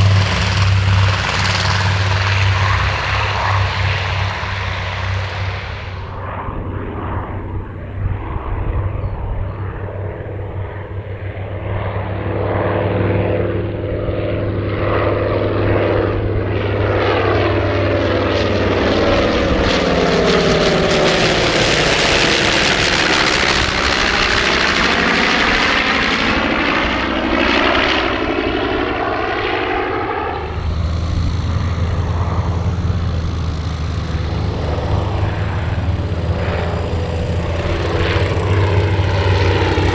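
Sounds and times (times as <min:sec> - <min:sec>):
propeller plane flyby: 0:00.0 - 0:39.9.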